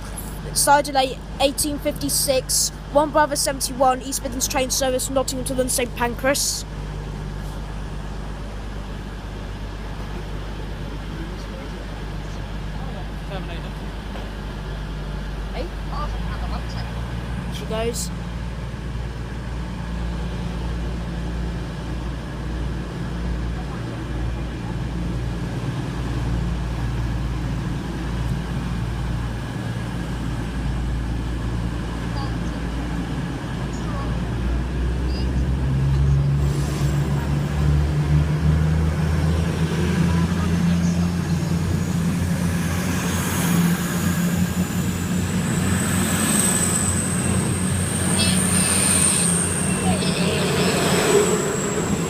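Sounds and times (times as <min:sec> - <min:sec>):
diesel train engine drone: 0:00.0 - 0:52.0
thin high whine: 0:41.7 - 0:52.0.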